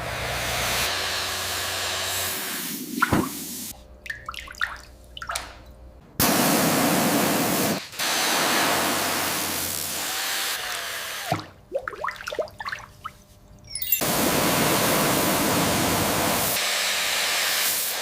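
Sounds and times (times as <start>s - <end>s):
hissing spray: 2.1s - 3.8s, 14.0s - 18.0s.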